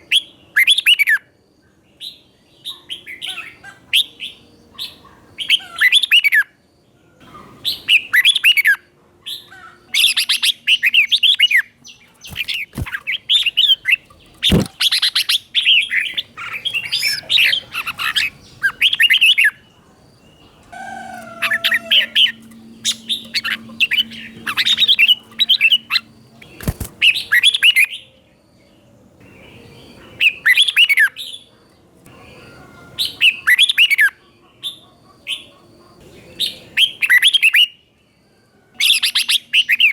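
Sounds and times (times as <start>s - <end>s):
bird singing warbled phrases: 7.2s - 28.1s.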